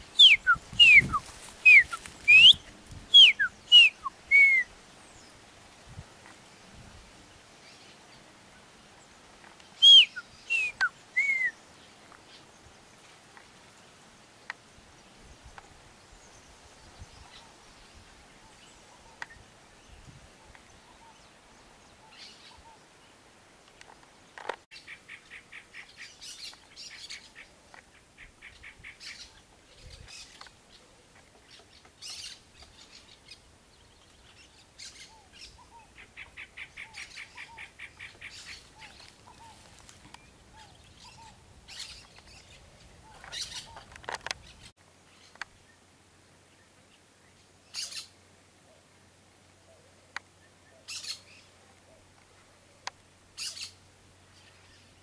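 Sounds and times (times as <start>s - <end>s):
bird chirps: 0.0s - 5.2s, 9.8s - 11.6s.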